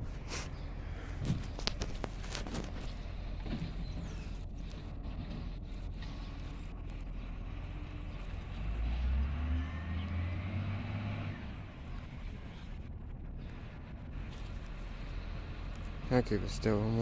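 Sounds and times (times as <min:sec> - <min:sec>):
garbage truck engine rumbling: 0:00.0 - 0:17.0.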